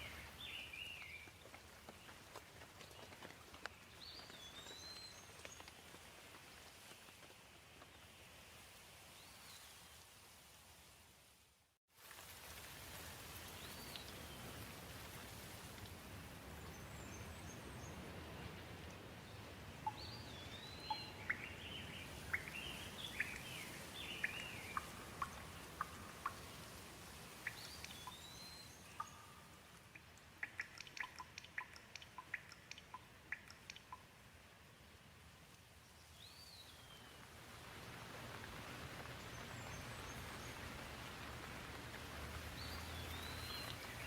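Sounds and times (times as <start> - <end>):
gentle rain falling: 0.0 - 44.0
bird chirping: 19.8 - 26.4, 27.4 - 34.0, 42.6 - 44.0
sharp drips: 22.3 - 34.1.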